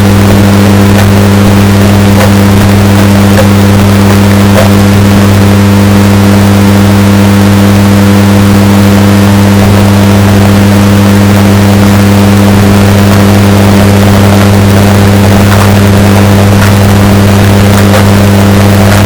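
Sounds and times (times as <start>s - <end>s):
washing machine humming: 0.0s - 5.8s, 11.2s - 19.0s.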